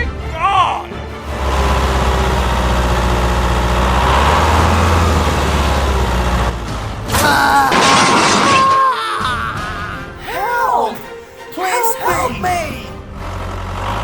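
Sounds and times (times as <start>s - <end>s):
tractor engine rumbling: 1.2s - 7.2s.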